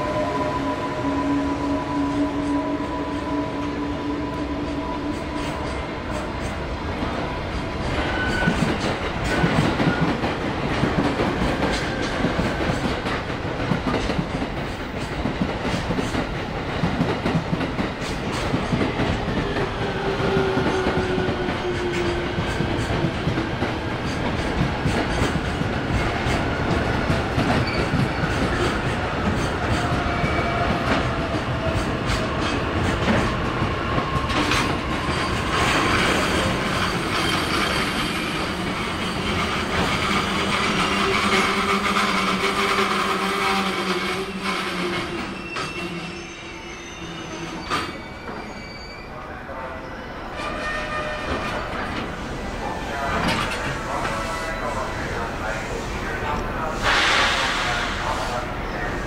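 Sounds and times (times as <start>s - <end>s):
train wheels clattering over rails: 5.1s - 45.8s
faint wheel squeals: 45.4s - 49.2s.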